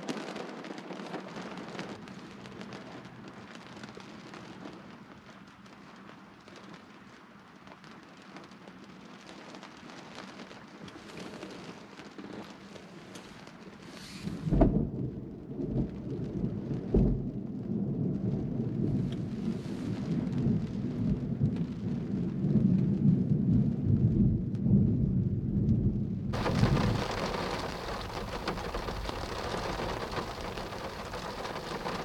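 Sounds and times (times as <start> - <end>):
steady rain hiss: 0.0 - 22.5, 26.3 - 32.0
thunder clap and rumble: 14.2 - 32.0.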